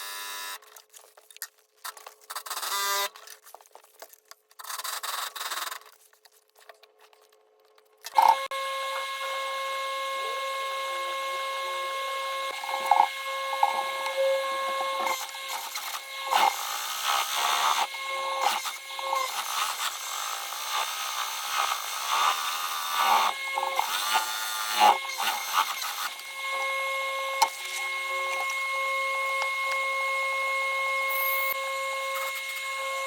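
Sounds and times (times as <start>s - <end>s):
high-pitched hum: 8.2s - 16.5s
scraping and rubbing: 12.6s - 16.5s.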